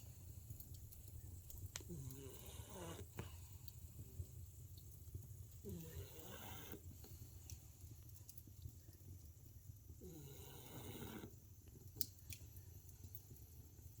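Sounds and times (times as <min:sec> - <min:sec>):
low steady hum: 0:00.0 - 0:14.0
dog snoring faintly: 0:01.8 - 0:03.8, 0:05.6 - 0:07.2, 0:10.0 - 0:11.4.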